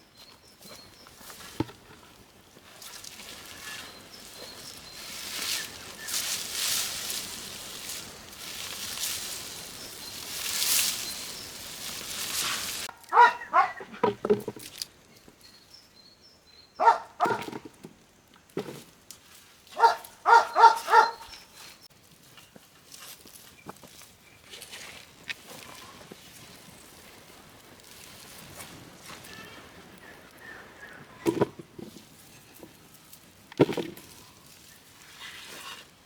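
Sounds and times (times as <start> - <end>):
animal barking calls: 12.8 - 14.0, 16.8 - 17.5, 19.8 - 21.4.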